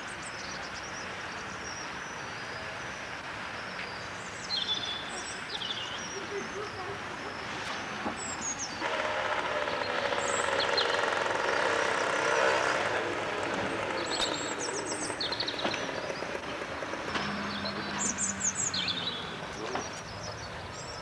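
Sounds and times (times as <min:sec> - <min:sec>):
birds chirping: 0:00.0 - 0:21.0
heavy machine noise with tones: 0:07.5 - 0:20.0.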